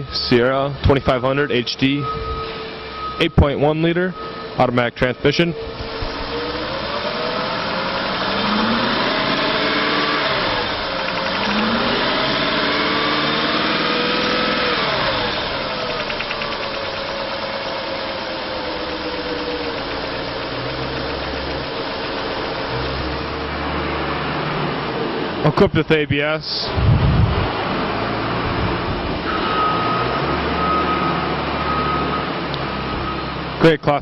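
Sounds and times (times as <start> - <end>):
engine revving and idling: 5.6 - 25.6, 26.7 - 33.7.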